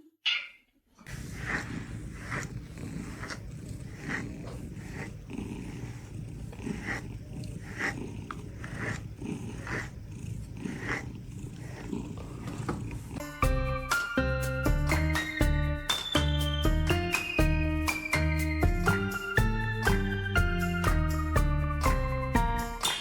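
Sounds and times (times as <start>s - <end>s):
low animal rumble: 1.1s - 13.4s.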